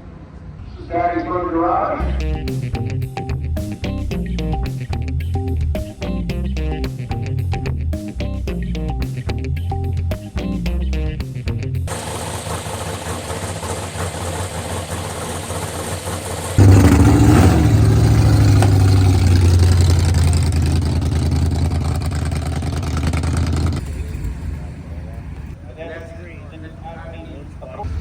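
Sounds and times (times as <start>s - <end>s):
engine running at high revs: 11.9s - 24.4s
drag racing car engines: 11.9s - 28.0s.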